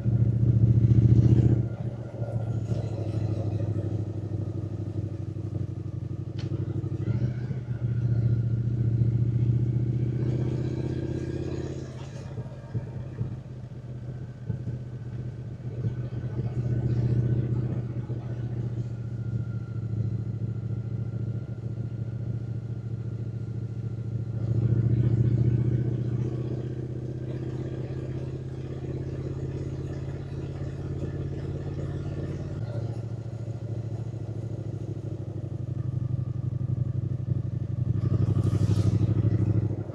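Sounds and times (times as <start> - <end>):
motorcycle engine pulling: 37.8 - 39.9.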